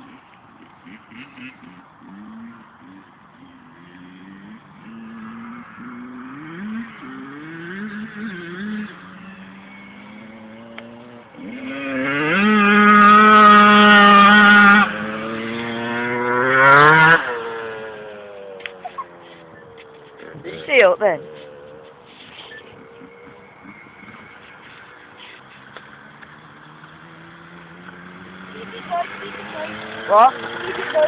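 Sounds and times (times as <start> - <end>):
motorbike engine revving: 0.0 - 31.0.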